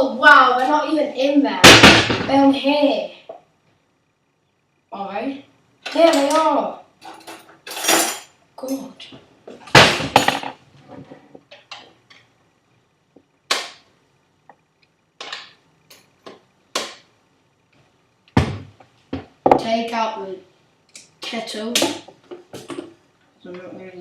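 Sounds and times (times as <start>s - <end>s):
kitchen items clattering: 7.0s - 8.3s, 9.7s - 11.2s.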